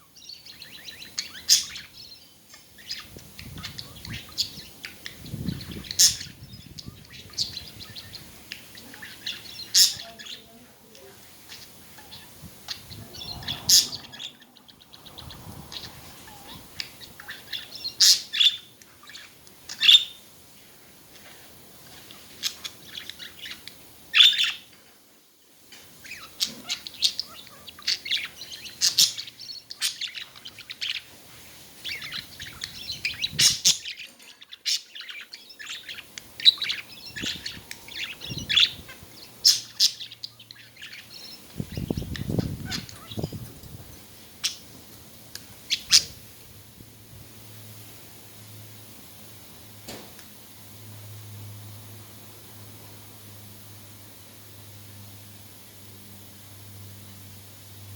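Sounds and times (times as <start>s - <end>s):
budgerigars chirping and warbling: 0.0s - 10.6s, 11.4s - 20.2s, 21.9s - 24.7s, 26.0s - 31.2s, 31.8s - 43.6s, 44.4s - 44.7s, 45.6s - 46.2s.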